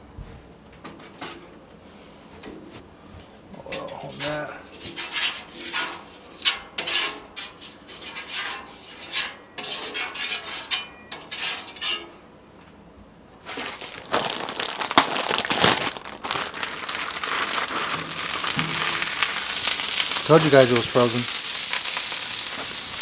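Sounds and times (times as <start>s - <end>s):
metal spatula scraping griddle: 3.7s - 12.2s, 17.7s - 23.0s
vegetables sizzling and popping: 13.5s - 23.0s.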